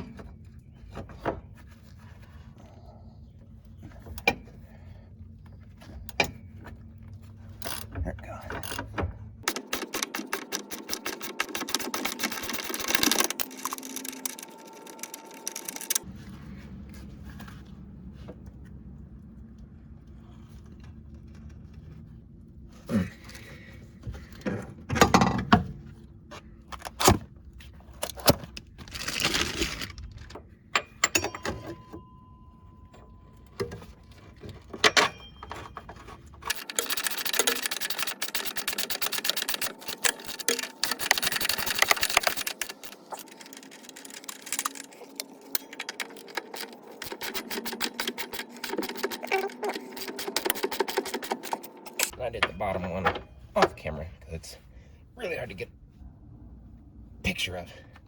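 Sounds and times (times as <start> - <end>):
ratchet wrench clicking rapidly: 9.4 - 14.3, 36.5 - 43.2, 46.2 - 52.1
metallic clanks of tools: 30.7 - 32.4, 33.0 - 37.0.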